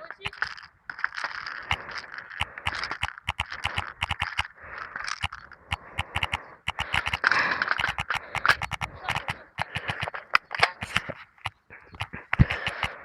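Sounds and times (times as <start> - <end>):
sharp clicks: 0.0 - 13.0.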